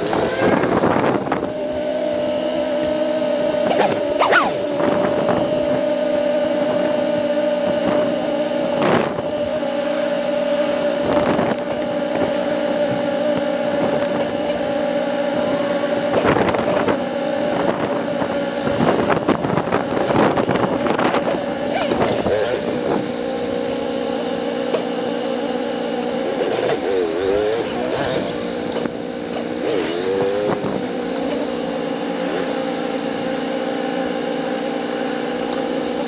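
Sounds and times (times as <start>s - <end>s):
motorcycle engine idling: 0.9s - 36.0s.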